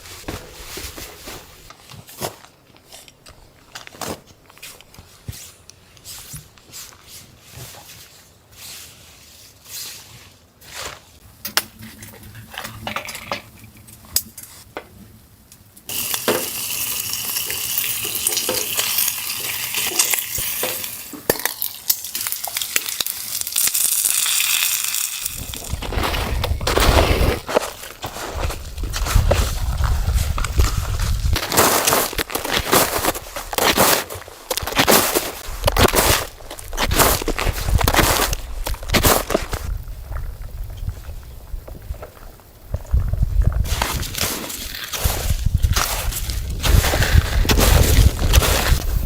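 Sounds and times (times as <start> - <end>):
dense crackling sizzling hiss: 13.6 - 32.3.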